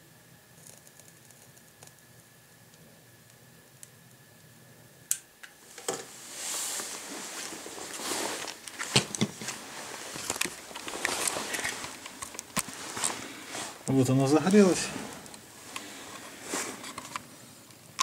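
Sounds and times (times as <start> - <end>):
soft hiss of flame: 6.1 - 8.8, 9.5 - 17.8
fire crackling: 6.1 - 18.0.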